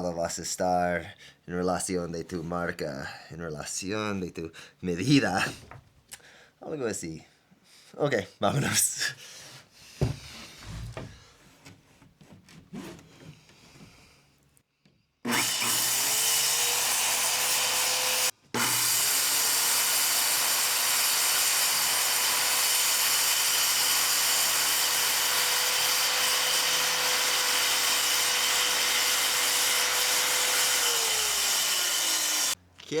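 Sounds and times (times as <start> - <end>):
circular saw cutting wood: 15.3 - 32.6.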